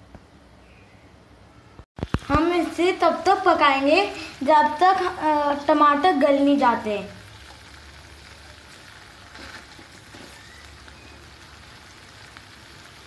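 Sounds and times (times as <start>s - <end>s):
vegetables sizzling in butter: 2.0s - 13.0s.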